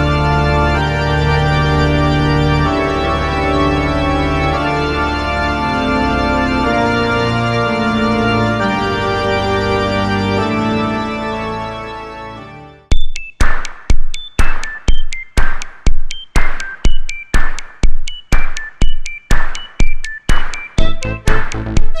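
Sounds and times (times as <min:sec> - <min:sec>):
synthesizer sustained chords: 0:00.0 - 0:12.9.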